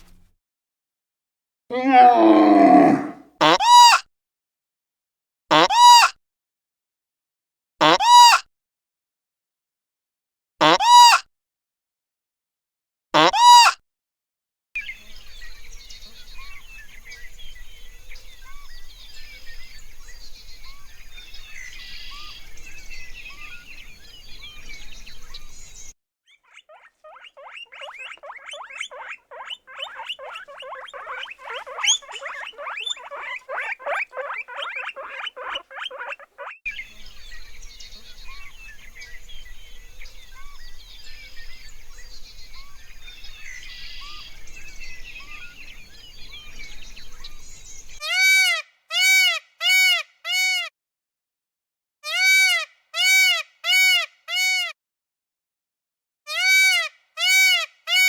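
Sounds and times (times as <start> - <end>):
birds chirping: 1.7 - 3.2, 14.8 - 48.0
rapid repeated animal calls: 1.7 - 3.2, 26.3 - 36.6.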